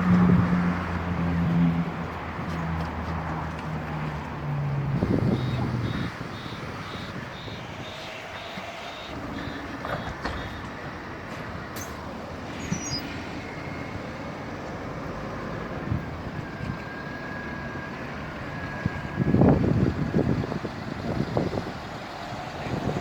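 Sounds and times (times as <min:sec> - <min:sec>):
steady outdoor rumble: 0:00.0 - 0:23.0
wind gust buffeting microphone: 0:04.9 - 0:11.2
storm wind: 0:04.9 - 0:14.9, 0:15.6 - 0:23.0.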